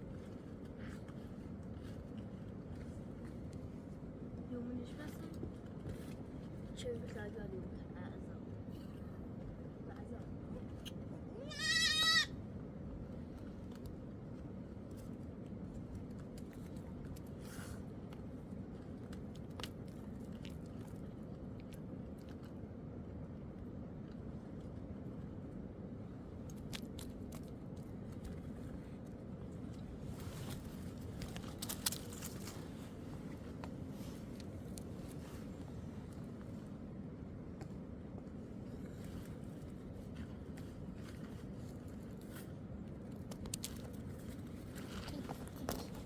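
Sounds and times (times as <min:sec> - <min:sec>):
low steady background: 0:00.0 - 0:46.0
steady low rumble: 0:00.0 - 0:46.0
sheep bleating: 0:11.4 - 0:12.3.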